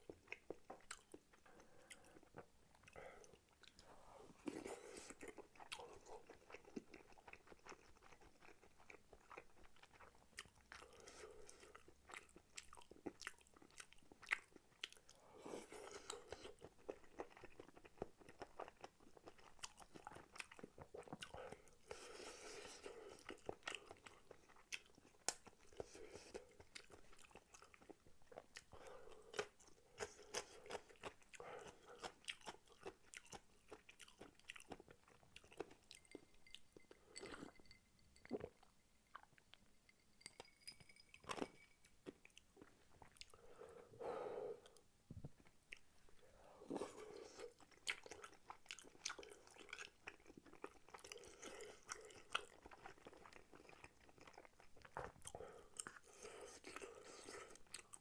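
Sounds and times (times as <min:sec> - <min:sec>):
chewing rice cakes: 0:00.0 - 0:37.6, 0:44.6 - 0:58.0.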